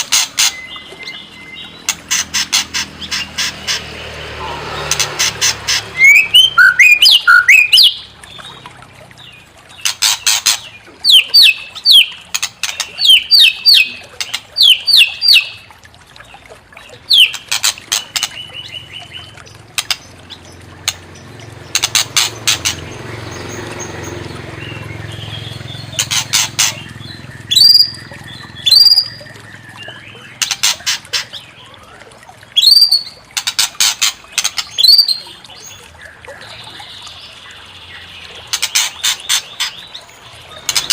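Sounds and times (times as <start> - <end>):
bird chattering and whistling: 4.4 - 8.1, 10.0 - 15.6, 25.7 - 31.4.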